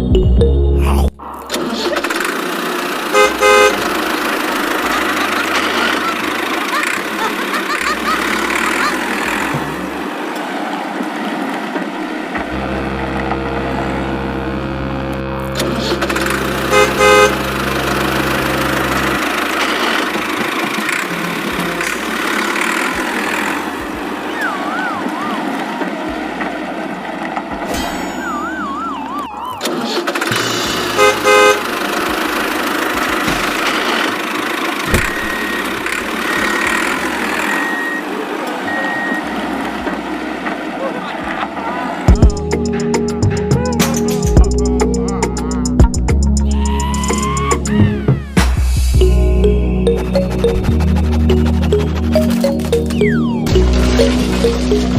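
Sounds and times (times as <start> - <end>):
low engine-like hum: 0.8 - 54.9
vehicle horn honking: 3.1 - 4.3, 12.4 - 19.4, 30.9 - 31.8
warbling tone: 27.7 - 29.7, 49.0 - 54.9
reversing beeps: 34.9 - 35.8, 37.4 - 39.3.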